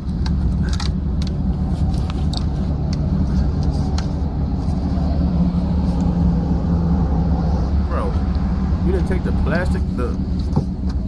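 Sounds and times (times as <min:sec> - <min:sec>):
car rumbling: 0:00.0 - 0:11.0
sharp clicks and knocks: 0:10.1 - 0:11.0.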